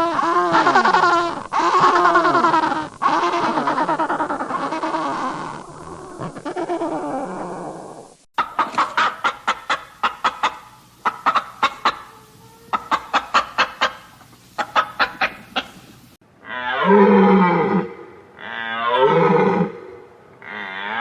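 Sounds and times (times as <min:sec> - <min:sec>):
animal call: 0:00.0 - 0:15.8, 0:16.4 - 0:21.0
chicken clucking: 0:00.1 - 0:05.2, 0:08.4 - 0:15.9.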